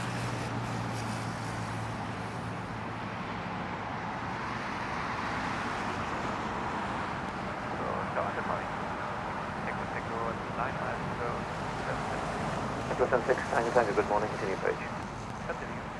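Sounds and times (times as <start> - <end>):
engine rumble: 7.2 - 15.9.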